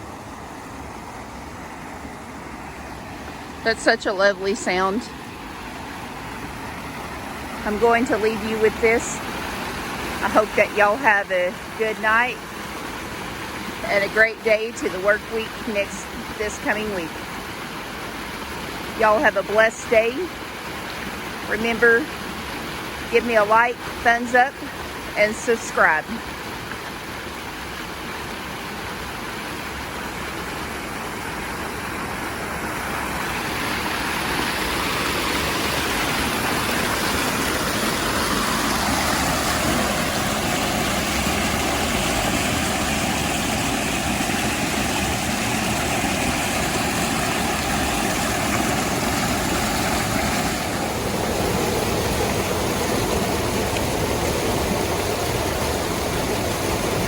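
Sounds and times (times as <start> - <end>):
creek water rushing: 0.0 - 57.0.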